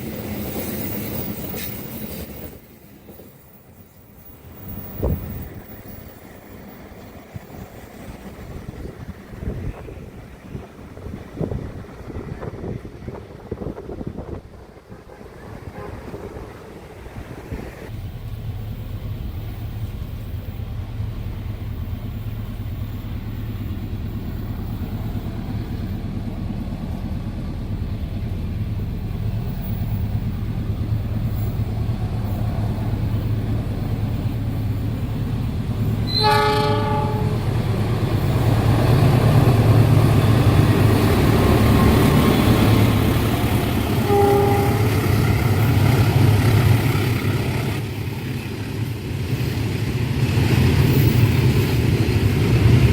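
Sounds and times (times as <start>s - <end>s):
train rumble: 0.0s - 52.9s
train horn: 15.0s - 16.5s, 36.0s - 37.5s, 43.9s - 45.3s.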